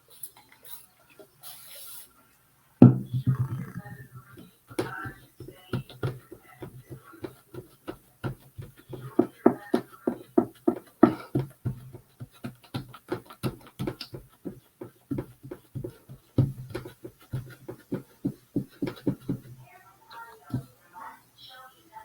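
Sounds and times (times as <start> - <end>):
sponge dabbing on wood: 2.8 - 19.6.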